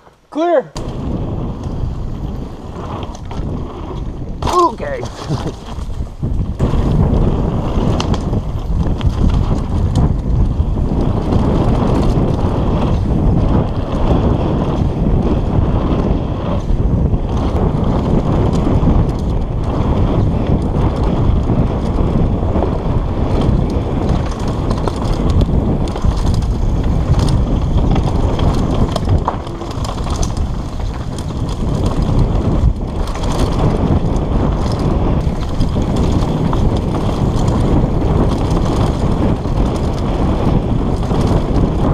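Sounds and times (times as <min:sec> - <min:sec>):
bike rattling and clattering: 0:00.0 - 0:41.9
wind buffeting microphone: 0:00.0 - 0:41.9
tyres rumbling over rock: 0:00.8 - 0:10.5, 0:23.3 - 0:41.9.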